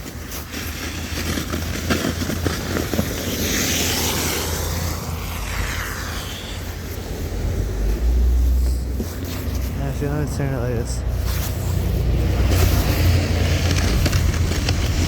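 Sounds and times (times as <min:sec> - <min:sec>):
snow shovel scraping ground: 0:00.0 - 0:15.0
vehicle driving past: 0:03.2 - 0:15.0.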